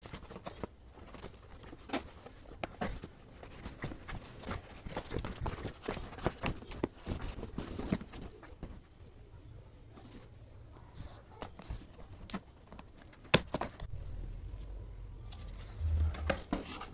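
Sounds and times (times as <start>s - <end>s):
box and packaging handled: 0.0s - 9.1s, 9.9s - 13.9s.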